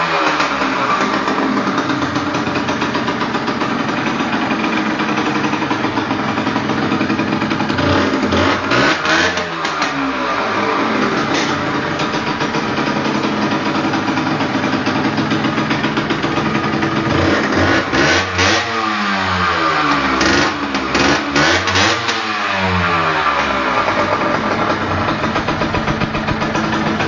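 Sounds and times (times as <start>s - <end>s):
small motorcycle engine revving: 0.0s - 27.0s
engine pops: 23.4s - 27.0s.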